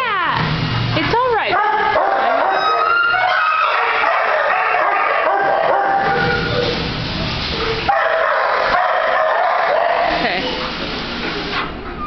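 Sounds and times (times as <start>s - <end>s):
many dogs barking: 1.4s - 6.8s, 7.6s - 10.2s.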